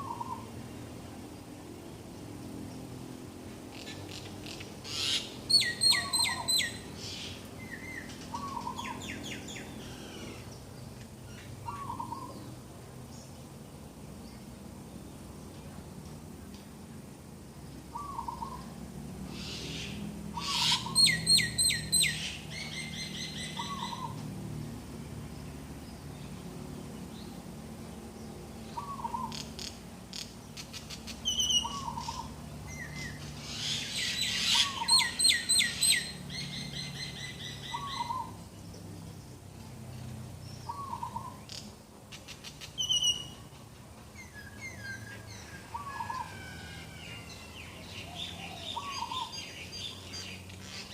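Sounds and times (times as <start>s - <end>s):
bird chirps: 3.7s - 10.6s, 19.4s - 24.2s, 28.2s - 39.2s, 40.5s - 43.5s, 47.0s - 50.9s.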